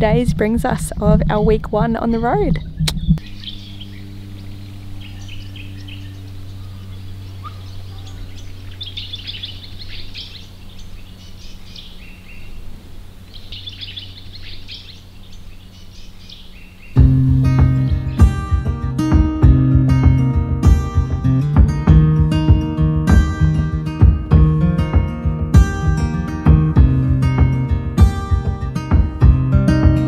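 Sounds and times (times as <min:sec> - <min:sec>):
birds chirping: 0:00.0 - 0:21.5
steady low hum: 0:00.0 - 0:29.7.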